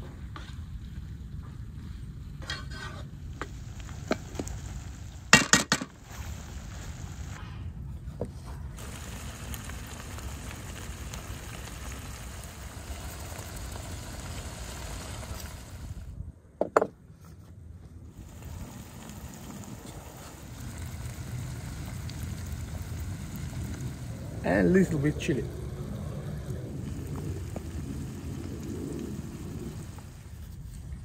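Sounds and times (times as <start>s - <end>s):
food sizzling in a pan: 2.5s - 7.4s, 8.8s - 16.2s, 18.1s - 30.4s.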